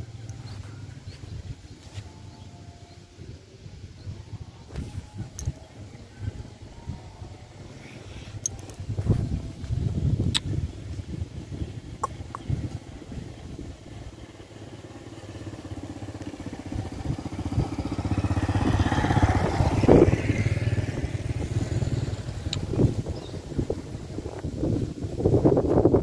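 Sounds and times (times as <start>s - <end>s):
vehicle engine passing by: 7.4s - 26.0s.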